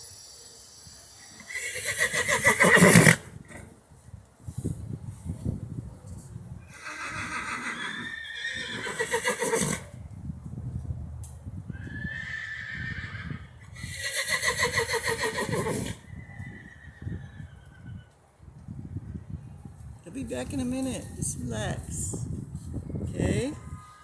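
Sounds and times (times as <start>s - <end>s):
horse whinnying: 1.4s - 3.7s, 6.7s - 10.0s, 11.8s - 17.9s.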